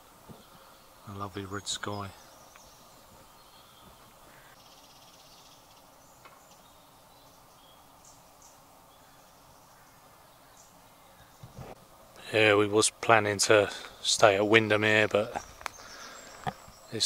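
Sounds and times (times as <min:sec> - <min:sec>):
faint high bird chirps: 0:00.3 - 0:11.8.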